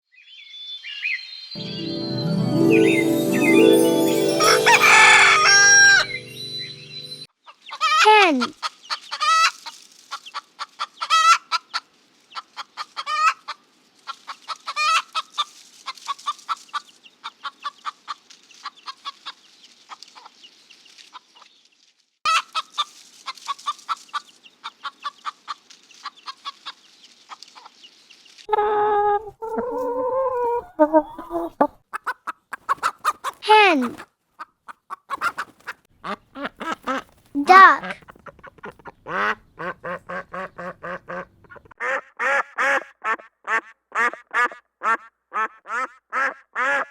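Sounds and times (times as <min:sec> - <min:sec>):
brief music: 0:01.6 - 0:07.3
chickens clucking: 0:28.5 - 0:37.2, 0:37.8 - 0:41.7.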